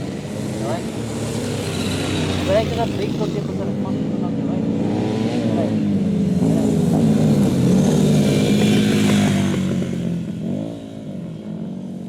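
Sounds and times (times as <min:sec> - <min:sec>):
motorcycle engine passing: 0:00.0 - 0:12.0.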